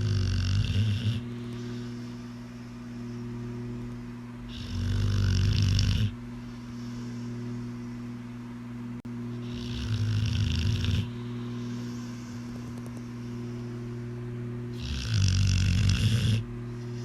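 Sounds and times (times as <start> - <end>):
dog snoring: 0.0 - 3.2, 4.4 - 7.9, 9.4 - 13.1, 14.7 - 17.0.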